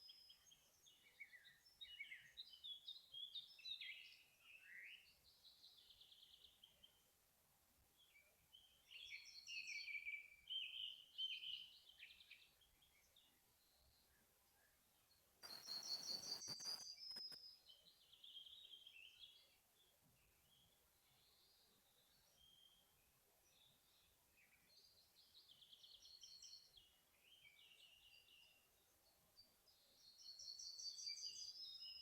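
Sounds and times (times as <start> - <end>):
songbirds singing: 0.0 - 7.1, 8.0 - 32.0
brief rush of noise: 15.4 - 17.4.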